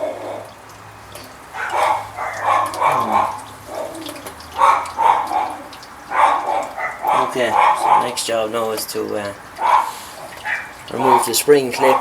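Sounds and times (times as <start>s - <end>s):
dog barking: 1.5s - 4.0s, 4.6s - 8.2s, 9.6s - 12.0s.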